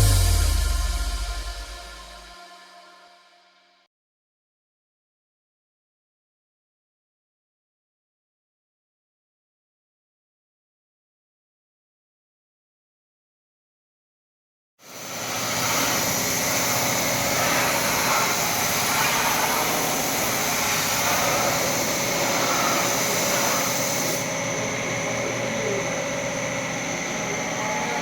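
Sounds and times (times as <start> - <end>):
machine whining: 0.0 - 2.9, 15.1 - 28.0.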